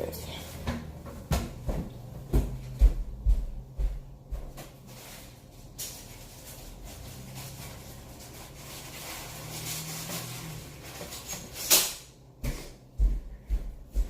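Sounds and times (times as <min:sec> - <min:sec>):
steady low hum: 0:00.0 - 0:14.0
low thumps: 0:00.6 - 0:04.6.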